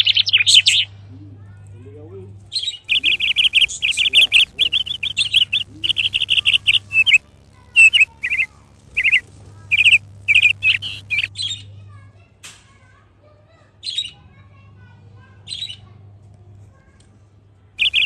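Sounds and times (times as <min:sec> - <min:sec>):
parakeet chirping: 0:00.0 - 0:01.0, 0:02.5 - 0:11.7, 0:17.8 - 0:18.0.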